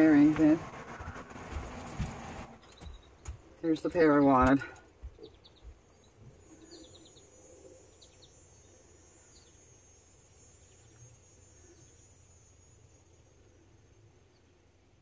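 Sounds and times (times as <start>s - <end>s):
faint high bird chirps: 2.6s - 14.8s
faint high insect buzz: 5.8s - 15.0s.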